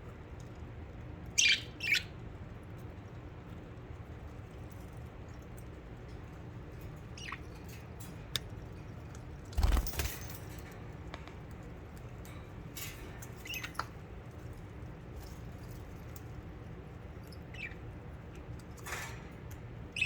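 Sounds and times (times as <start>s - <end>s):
budgies chirping: 1.4s - 2.1s, 7.2s - 7.5s, 17.3s - 17.8s.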